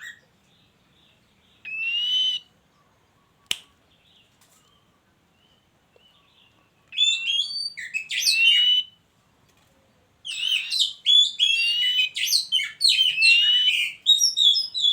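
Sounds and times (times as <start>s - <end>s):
bird singing whistled notes: 1.0s - 2.5s, 5.4s - 9.0s, 10.3s - 14.9s.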